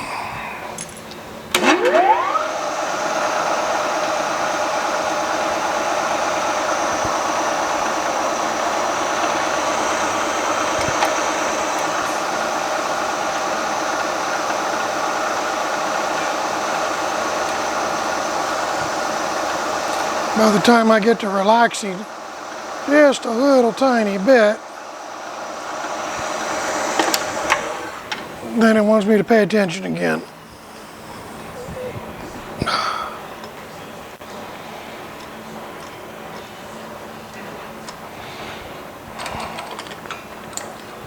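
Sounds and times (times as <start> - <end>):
steady machine tones: 0.0 - 40.6
milling spindle whine: 0.8 - 32.6
drill bit cutting steel: 1.5 - 28.8
steady hiss: 4.0 - 36.3.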